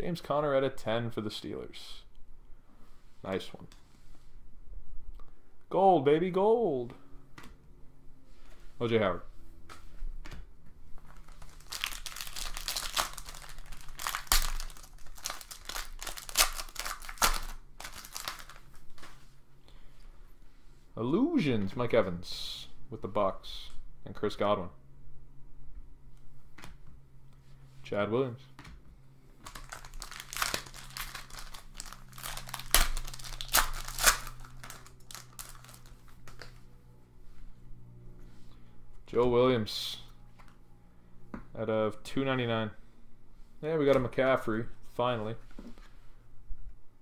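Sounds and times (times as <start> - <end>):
foil wrapper tearing and crinkling: 11.1 - 19.1, 29.4 - 36.6.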